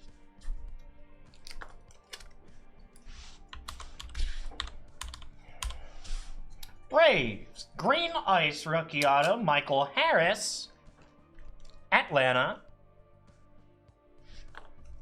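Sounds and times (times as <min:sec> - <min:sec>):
faint background music: 0:00.0 - 0:15.0
trading cards clicking and tapping: 0:01.3 - 0:06.9.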